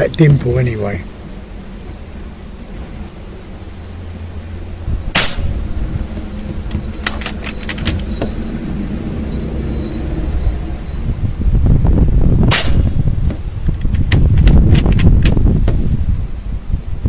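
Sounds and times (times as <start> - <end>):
wind buffeting microphone: 4.2 - 17.0
air rifle shot: 5.1 - 5.7, 12.5 - 13.0.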